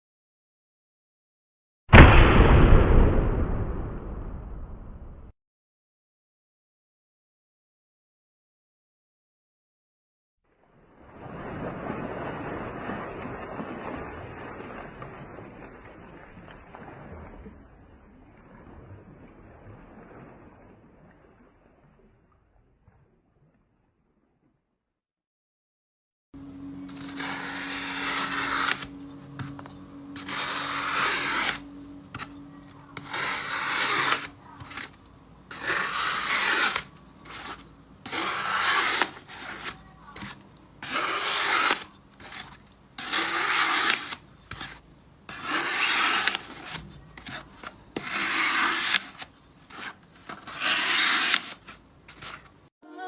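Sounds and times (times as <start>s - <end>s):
scraping strokes: 26.8s - 52.7s.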